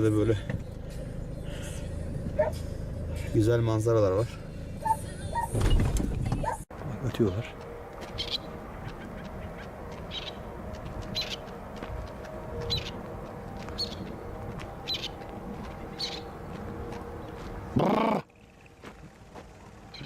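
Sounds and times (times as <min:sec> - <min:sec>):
steady low hum: 0:00.0 - 0:20.0
partridges calling: 0:08.2 - 0:10.4, 0:13.8 - 0:14.1, 0:15.9 - 0:16.3.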